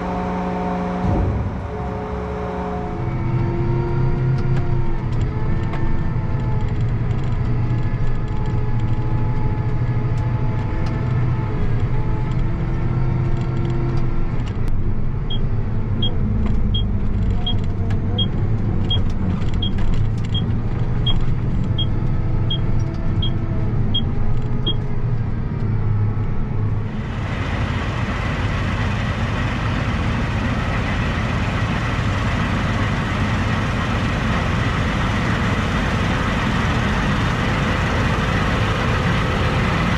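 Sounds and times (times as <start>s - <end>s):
diesel engine running: 0.0s - 39.9s
hissy engine noise: 26.9s - 39.9s.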